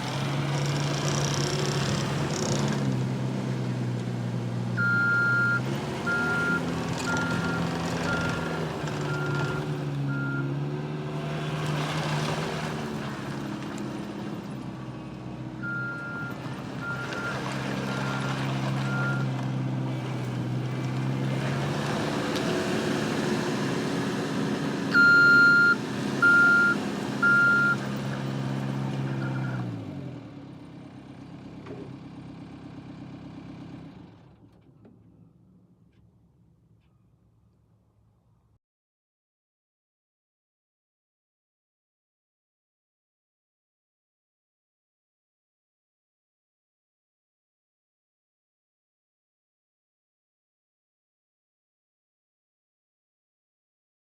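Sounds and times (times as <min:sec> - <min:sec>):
diesel engine running: 0:00.0 - 0:35.8
backup alarm beeping: 0:04.8 - 0:07.5, 0:25.0 - 0:27.8.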